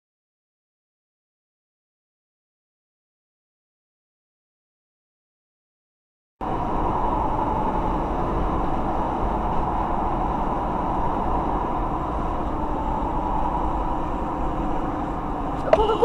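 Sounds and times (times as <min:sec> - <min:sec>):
vehicle road and engine noise: 0:06.4 - 0:16.0.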